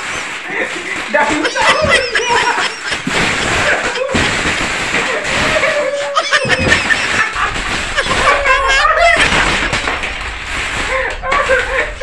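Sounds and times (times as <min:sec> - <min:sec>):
voices: 0:00.5 - 0:04.3, 0:05.0 - 0:09.9
people laughing: 0:00.5 - 0:10.2, 0:10.9 - 0:12.0.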